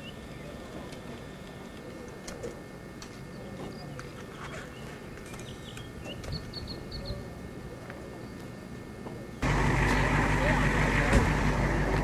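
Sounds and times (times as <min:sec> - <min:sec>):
bird chirping: 0:03.3 - 0:07.2.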